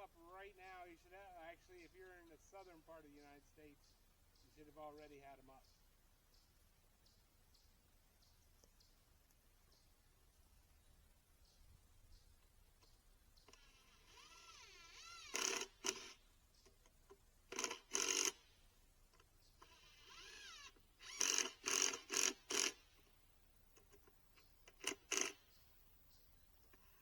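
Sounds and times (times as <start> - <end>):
power drill driving screws: 13.5 - 16.2, 17.5 - 18.5, 19.6 - 23.0, 24.7 - 25.5.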